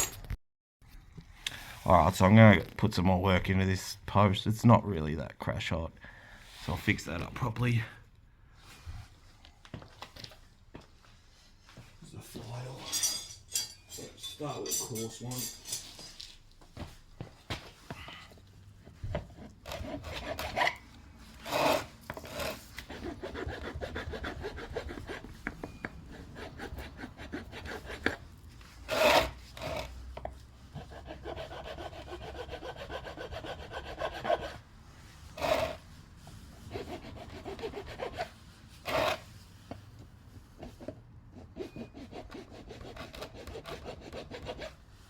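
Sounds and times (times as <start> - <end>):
file rasping on metal: 19.6 - 20.8, 21.4 - 28.2, 28.8 - 30.0, 30.7 - 34.6, 35.4 - 35.8, 36.6 - 39.2, 40.6 - 44.8.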